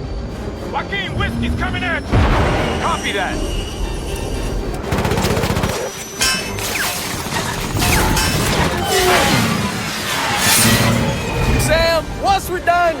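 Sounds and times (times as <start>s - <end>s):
fighter jet cannon fire: 2.1s - 3.3s
sudden crash: 2.1s - 4.0s.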